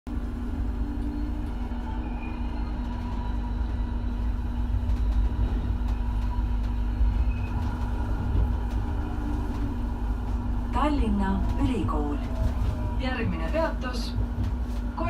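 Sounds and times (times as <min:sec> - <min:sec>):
tram rumble: 0:00.1 - 0:15.0.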